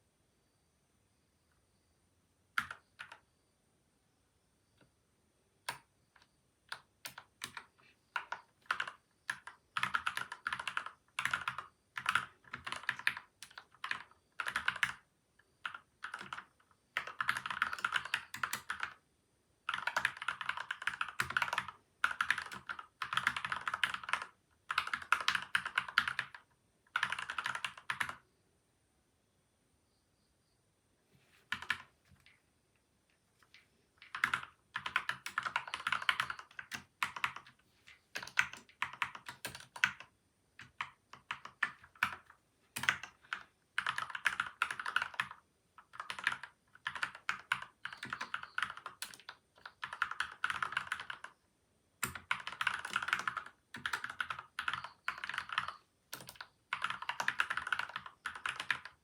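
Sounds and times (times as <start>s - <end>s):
mechanical keyboard typing: 2.6s - 3.2s, 5.7s - 19.0s, 19.7s - 28.2s, 31.5s - 32.3s, 33.5s - 51.4s, 52.0s - 59.0s.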